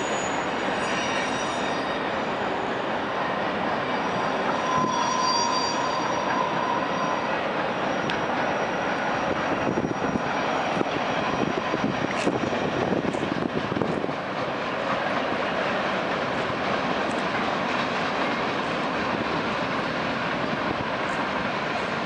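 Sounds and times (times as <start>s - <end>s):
wheel squeal: 0.0s - 2.9s, 3.6s - 12.6s
train rolling on rails: 0.0s - 22.0s.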